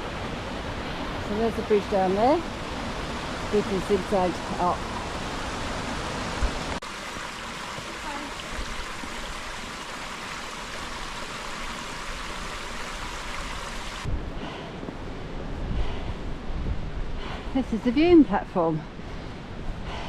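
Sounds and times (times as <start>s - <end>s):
rushing water and falls: 0.0s - 14.2s.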